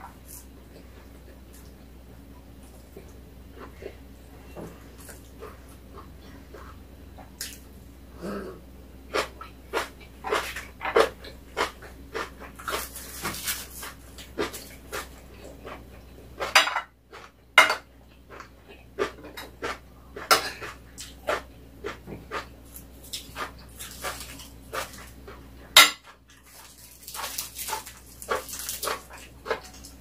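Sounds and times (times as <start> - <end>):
person chewing and lip smacking: 4.7 - 7.7, 9.1 - 16.5, 18.0 - 30.0.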